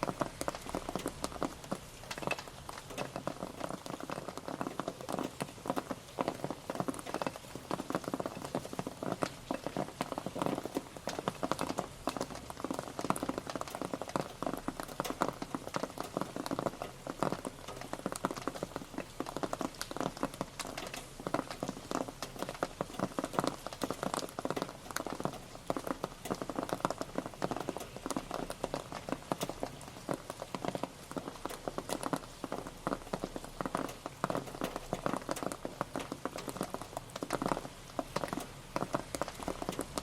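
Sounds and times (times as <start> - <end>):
steady rain pattering: 0.0 - 40.0.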